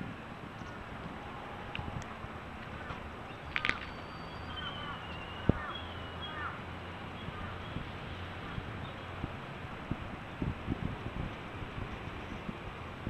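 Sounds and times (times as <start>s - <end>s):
outdoor background noise: 0.0s - 13.0s
faint bird chirps: 3.3s - 6.6s.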